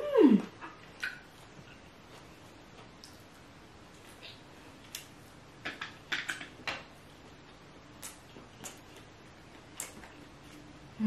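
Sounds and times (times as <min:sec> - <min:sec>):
wet chewing clicks and smacks: 0:07.4 - 0:10.6.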